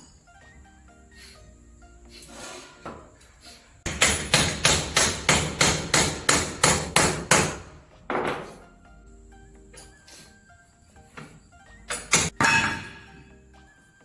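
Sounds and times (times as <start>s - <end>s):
hammer striking nails into wood: 3.9s - 8.5s.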